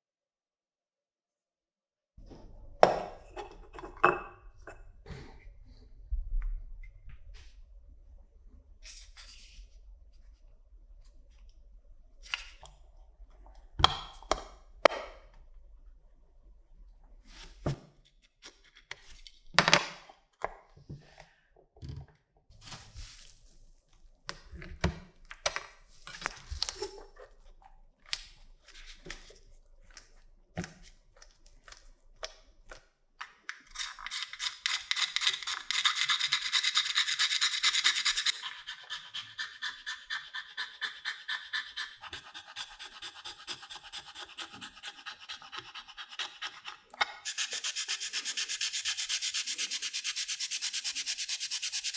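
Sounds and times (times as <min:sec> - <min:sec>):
hand sanding strokes: 0:35.7 - 0:51.9.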